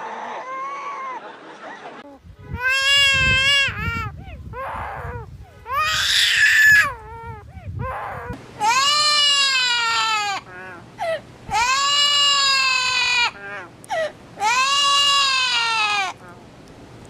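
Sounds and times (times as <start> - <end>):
parrot mimicking crying baby: 2.4 - 16.4.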